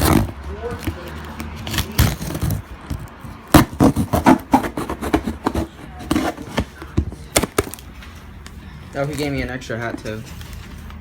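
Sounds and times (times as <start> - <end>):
cardboard box scraping and rubbing: 0.0 - 6.8.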